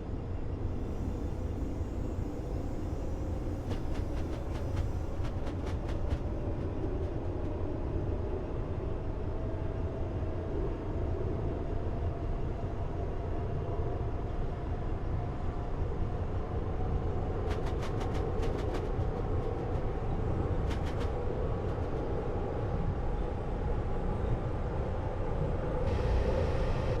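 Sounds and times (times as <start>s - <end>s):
train rumbling: 0.3s - 11.5s, 13.5s - 27.0s
faint steady whine: 22.8s - 27.0s.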